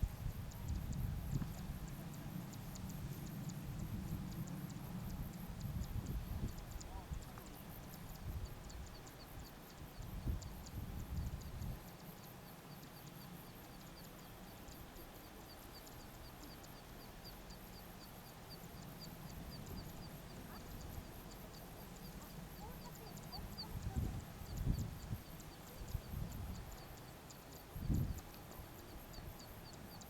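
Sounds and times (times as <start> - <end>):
wind gusting on microphone: 5.0 - 7.3, 23.6 - 26.7, 27.7 - 28.3.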